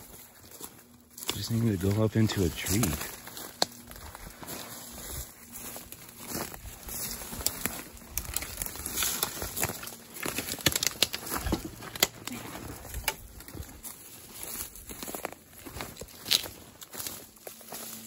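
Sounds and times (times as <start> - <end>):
footsteps through dry leaves: 0.0 - 18.0
twigs snapping: 1.1 - 2.0, 3.1 - 4.1, 6.9 - 17.2.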